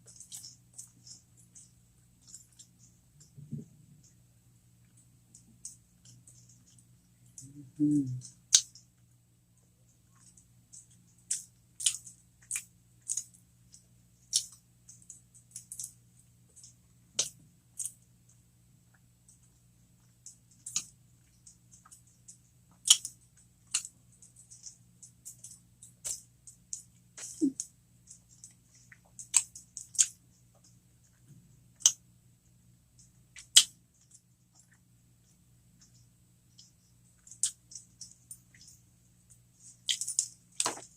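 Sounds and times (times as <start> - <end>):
close-miked chewing: 0.0 - 4.2, 4.8 - 32.0
crackly mouth clicks: 0.0 - 4.2, 4.8 - 9.0, 10.1 - 16.0, 16.6 - 32.0, 33.0 - 40.8
faint low hum: 0.0 - 40.9.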